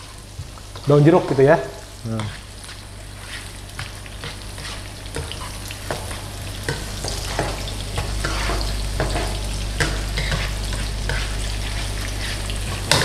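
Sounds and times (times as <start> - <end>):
vegetables sizzling in oil: 0.0 - 13.0
spatula scraping pan: 2.2 - 13.0.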